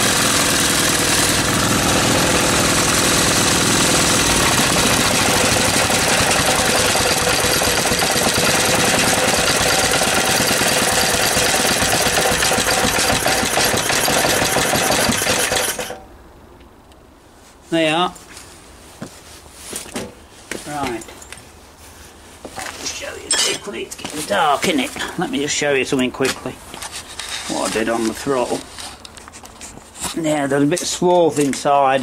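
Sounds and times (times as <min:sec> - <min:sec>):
small petrol engine fast idle: 0:00.0 - 0:16.0.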